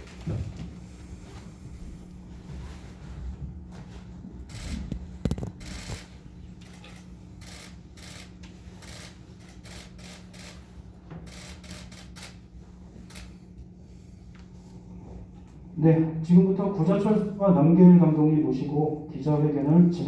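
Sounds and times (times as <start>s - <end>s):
low room hum: 0.0s - 20.0s
camera shutters clicking: 4.6s - 6.0s.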